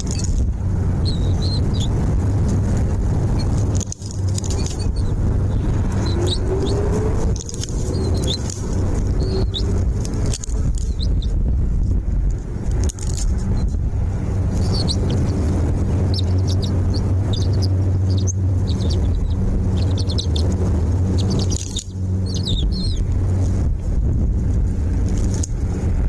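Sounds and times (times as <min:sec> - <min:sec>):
small birds chirping: 0:00.0 - 0:00.4, 0:01.0 - 0:02.1, 0:03.3 - 0:11.4, 0:14.4 - 0:23.5
loud low rumble: 0:00.0 - 0:26.0.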